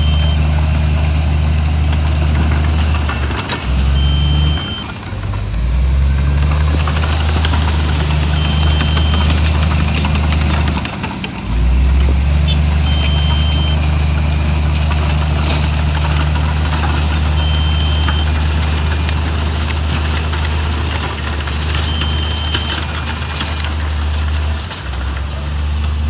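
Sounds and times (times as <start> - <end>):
short high beep: 0.0 - 0.6, 12.5 - 13.8
heavy diesel engine running: 0.0 - 26.0.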